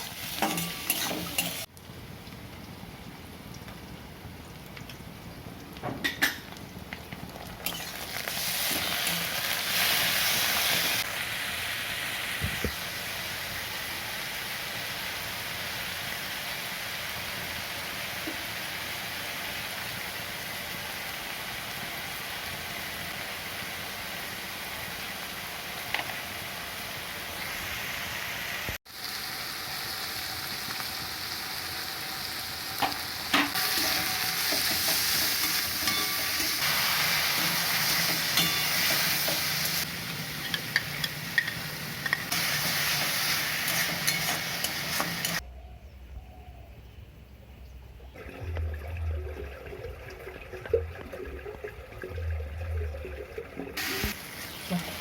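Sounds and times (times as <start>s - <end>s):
food sizzling in hot oil: 0.0s - 45.4s, 53.8s - 55.0s.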